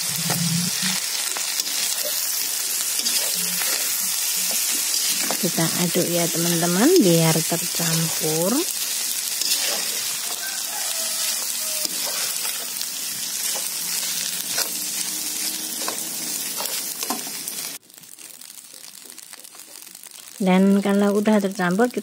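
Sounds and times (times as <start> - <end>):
fried rice sizzling in wok: 0.0 - 22.0
metal spatula scraping and clinking: 2.9 - 5.4, 9.2 - 10.4, 11.3 - 12.8, 13.4 - 17.3.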